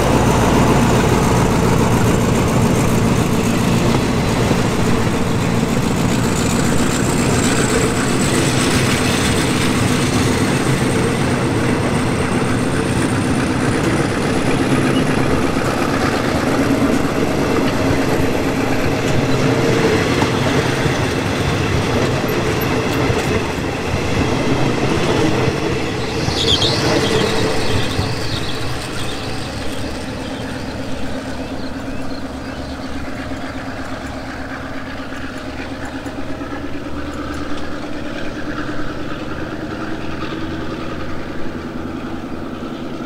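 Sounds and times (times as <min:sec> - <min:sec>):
high wheel squeal: 0:00.0 - 0:43.0
train coaches running on rails: 0:00.0 - 0:43.0.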